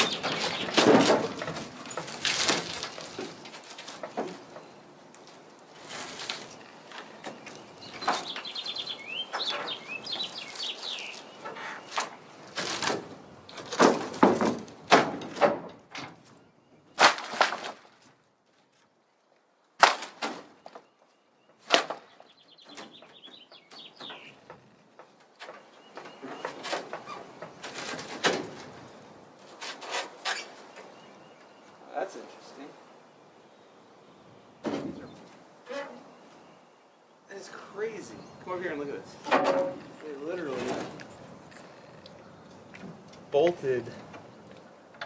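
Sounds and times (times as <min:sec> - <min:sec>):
bird chirping: 0:00.0 - 0:02.0, 0:06.5 - 0:12.4, 0:20.6 - 0:27.5, 0:30.4 - 0:44.7
wooden boards cracking and scraping: 0:00.0 - 0:08.5, 0:11.4 - 0:16.3, 0:16.9 - 0:18.7, 0:19.8 - 0:21.0, 0:21.6 - 0:30.6, 0:39.2 - 0:41.2.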